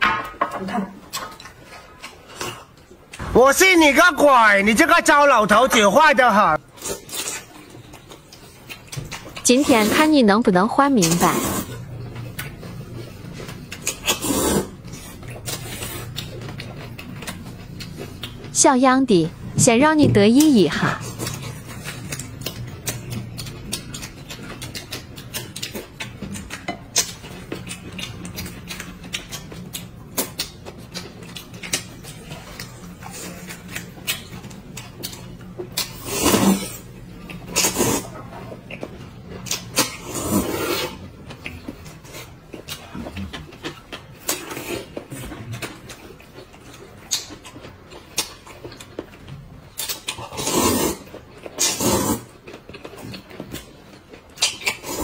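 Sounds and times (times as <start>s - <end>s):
chewing and smacking: 1.0s - 3.3s, 6.6s - 9.8s, 11.1s - 18.5s, 20.4s - 55.0s
slurping: 11.0s - 11.8s, 13.8s - 16.3s, 50.2s - 52.4s.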